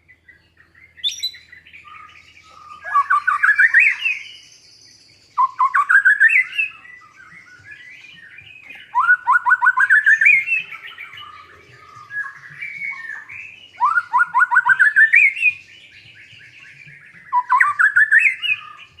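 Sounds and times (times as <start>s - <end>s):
songbird singing rising phrases: 0.0s - 19.0s
soft bird warbling: 1.8s - 4.4s.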